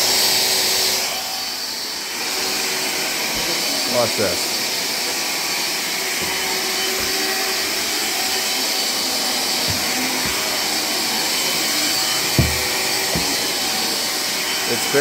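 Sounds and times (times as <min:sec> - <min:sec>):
cordless vacuum cleaner running: 0:00.0 - 0:15.0
dull knocks: 0:06.2 - 0:08.5, 0:09.6 - 0:14.1.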